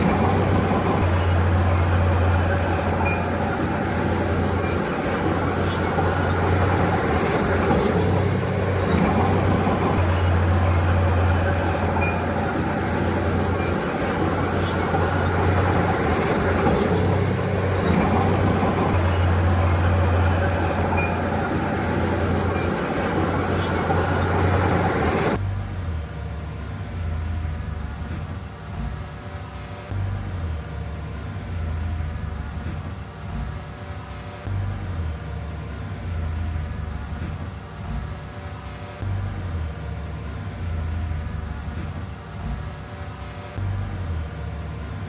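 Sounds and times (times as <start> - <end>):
metallic clinks and squeaks: 0.0 - 25.4
bulldozer diesel engine running: 0.0 - 28.9, 38.9 - 43.0, 43.6 - 45.0.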